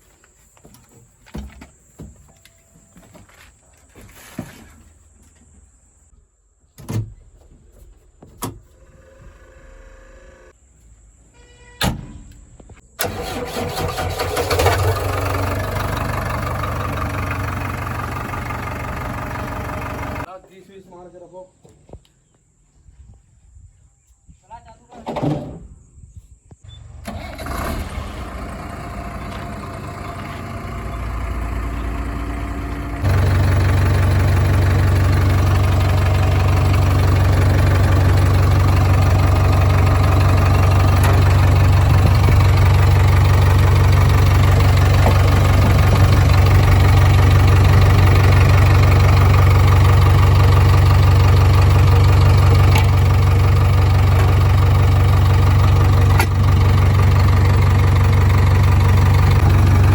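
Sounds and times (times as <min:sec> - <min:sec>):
diesel engine starting and running: 0:08.7 - 0:10.6, 0:12.9 - 0:20.3, 0:26.7 - 0:59.9.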